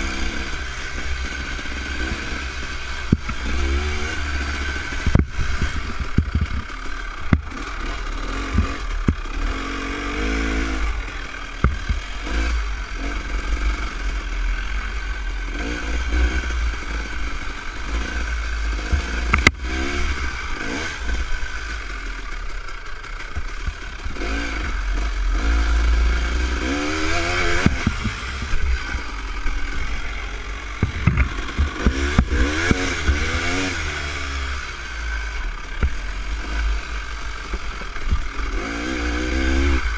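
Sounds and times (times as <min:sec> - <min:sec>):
dirt bike engine revving: 0:00.0 - 0:39.9
bike clattering over rough ground: 0:05.0 - 0:09.4.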